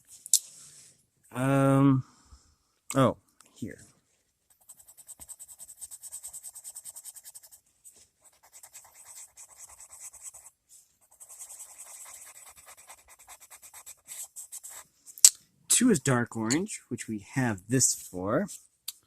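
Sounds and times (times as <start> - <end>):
pencil scratching on paper: 4.5 - 15.1.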